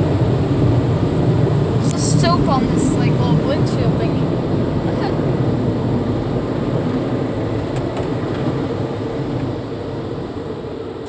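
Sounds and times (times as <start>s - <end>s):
car cabin rumbling: 6.0s - 10.5s.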